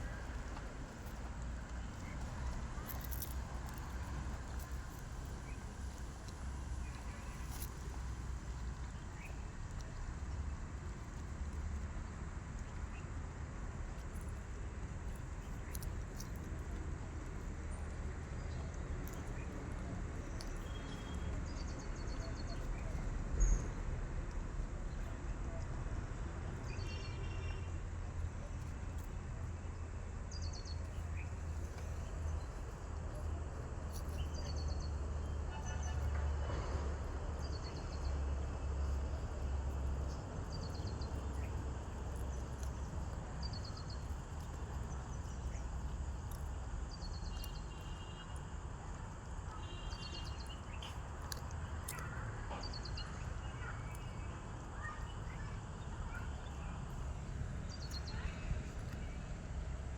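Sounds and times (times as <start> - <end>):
bird chirping: 37.4 - 48.3.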